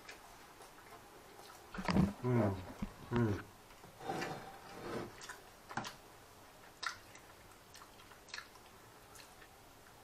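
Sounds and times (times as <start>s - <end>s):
person chewing food: 0.0s - 2.2s, 5.1s - 6.0s, 6.6s - 10.0s.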